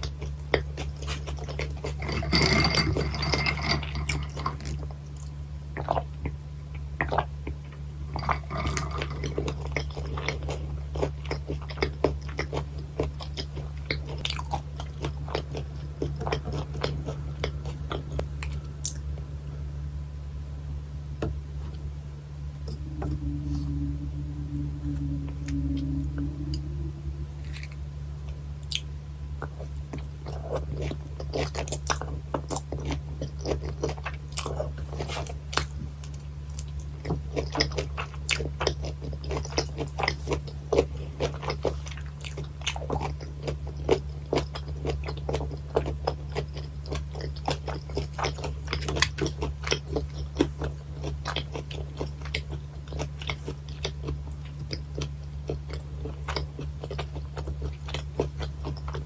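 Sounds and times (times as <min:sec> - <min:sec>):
chewing fish bones crunching: 0:00.0 - 0:19.3, 0:29.4 - 0:59.0
low hum: 0:00.0 - 0:42.8.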